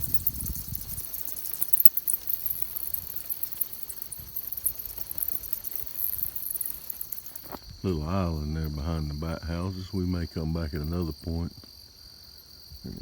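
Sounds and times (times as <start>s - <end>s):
bats squeaking: 0.0s - 7.6s
insect drone: 0.0s - 13.0s.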